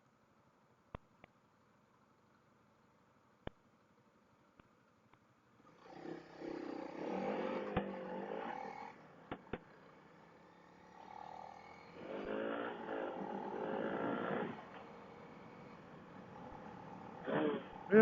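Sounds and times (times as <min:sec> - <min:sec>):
motorcycle engine accelerating: 0:06.9 - 0:18.0.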